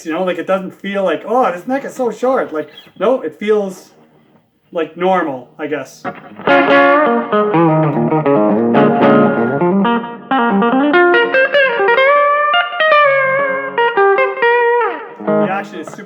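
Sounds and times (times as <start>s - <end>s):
electric guitar with bends and vibrato: 6.0s - 16.0s.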